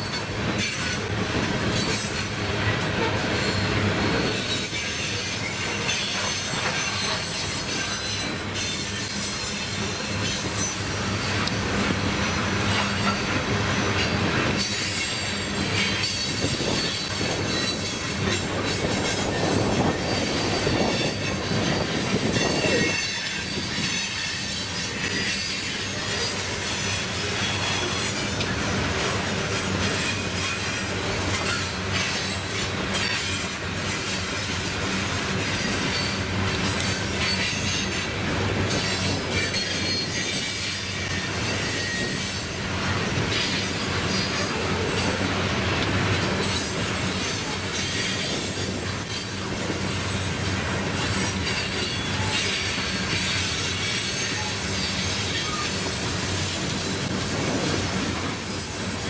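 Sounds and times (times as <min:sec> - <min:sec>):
train wheels rumbling and clattering: 0:00.0 - 0:59.0
high-pitched wheel squeal: 0:38.7 - 0:42.5, 0:50.1 - 0:56.1.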